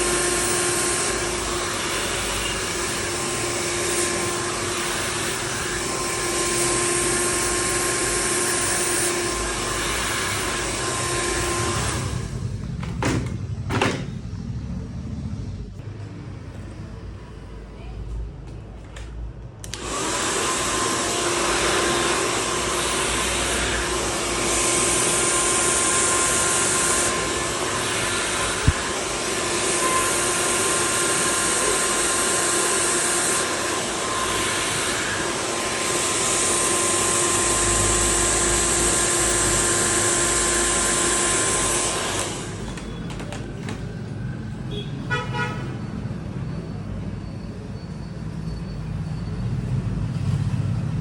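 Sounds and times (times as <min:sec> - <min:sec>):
hair dryer running with whine: 0:00.0 - 0:13.3, 0:19.6 - 0:44.2.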